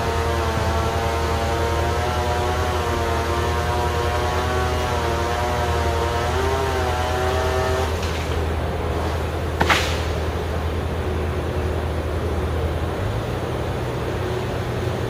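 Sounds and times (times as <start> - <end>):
low engine drone: 0.0 - 15.0
wavering motor whine: 0.0 - 15.0
sharp crack: 7.6 - 10.7.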